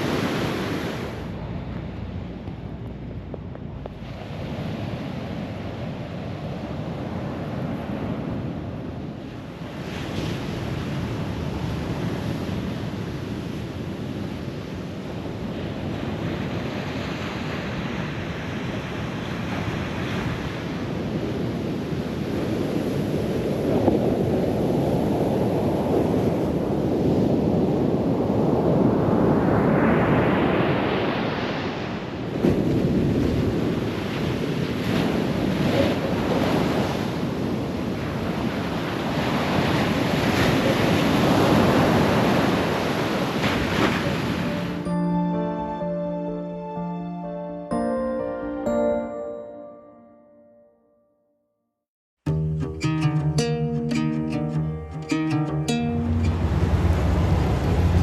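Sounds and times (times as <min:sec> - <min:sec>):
surf washing onto sandy beach: 0:00.0 - 0:01.4, 0:28.4 - 0:44.8
wind buffeting microphone: 0:00.0 - 0:44.4, 0:56.1 - 0:58.0.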